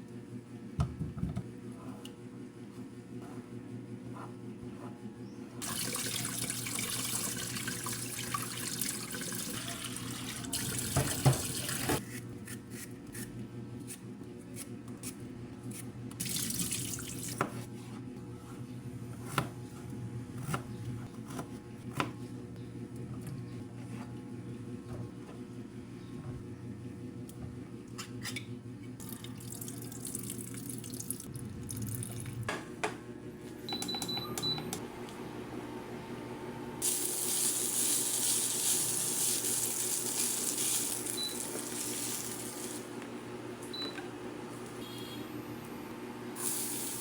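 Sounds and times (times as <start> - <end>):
water running: 5.6 - 12.0, 16.2 - 17.4, 29.0 - 32.4, 36.8 - 42.9
low steady hum: 28.8 - 37.1.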